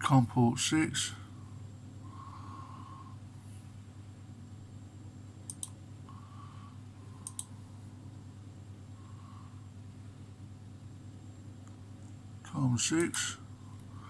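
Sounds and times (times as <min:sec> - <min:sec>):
steady low hum: 0:00.0 - 0:14.0
computer mouse clicking: 0:05.5 - 0:05.8, 0:07.2 - 0:07.5.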